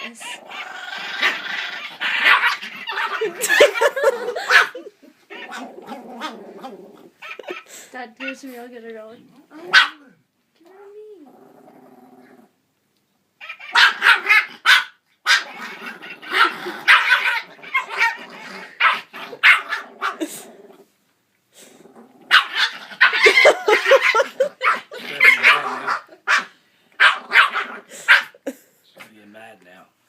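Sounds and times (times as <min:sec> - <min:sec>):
puppy barking rapidly: 0:01.2 - 0:06.3, 0:09.7 - 0:10.0, 0:13.4 - 0:15.6, 0:16.4 - 0:18.2, 0:18.8 - 0:20.2, 0:22.3 - 0:28.4.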